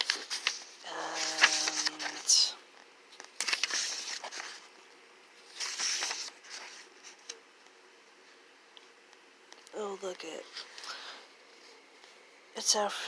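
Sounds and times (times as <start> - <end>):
book pages rustling: 0.0 - 7.8.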